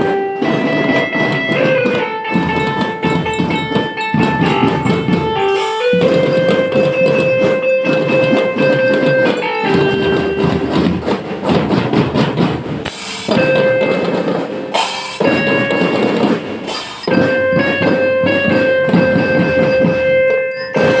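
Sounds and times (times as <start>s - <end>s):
marching band melody instruments: 0.0s - 21.0s
snare and bass drums: 0.0s - 21.0s.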